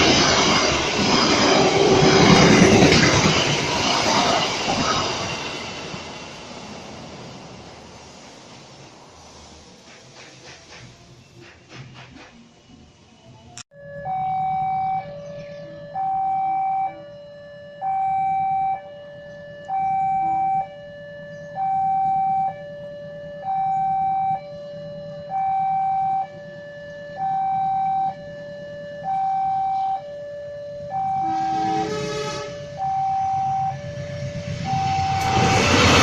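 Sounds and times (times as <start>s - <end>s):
two-tone electronic alarm: 13.7s - 36.0s.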